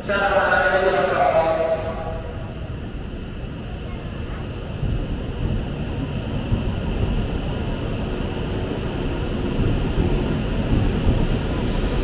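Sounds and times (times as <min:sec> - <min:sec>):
train pulling out rumbling: 0:00.0 - 0:12.0.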